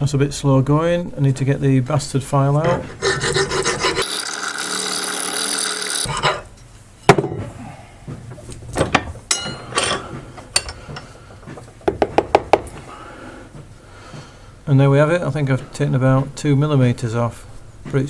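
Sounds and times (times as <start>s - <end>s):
metal file rasping on brass: 2.6s - 6.5s
metal parts clinking: 8.8s - 10.8s.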